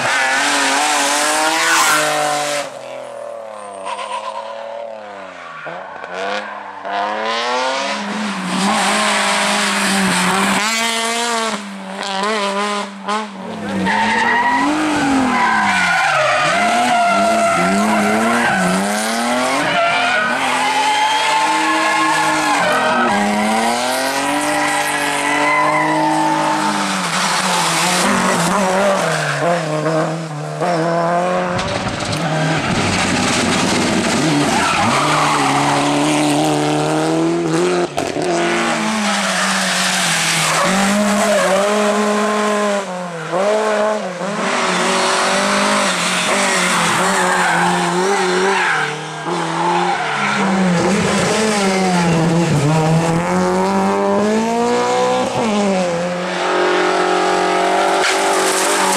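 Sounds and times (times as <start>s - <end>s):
rally car engines revving: 0.0s - 58.9s
tyre and road noise: 0.0s - 58.9s
tyres skidding: 0.0s - 58.9s.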